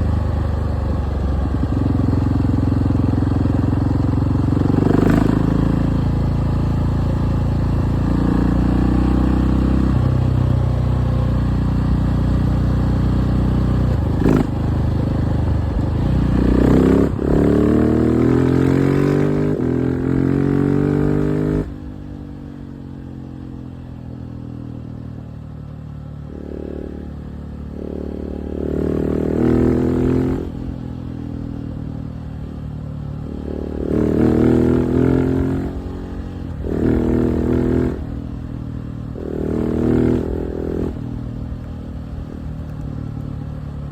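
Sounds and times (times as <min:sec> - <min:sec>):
motorcycle engine revving: 0:00.0 - 0:25.3, 0:26.1 - 0:43.9.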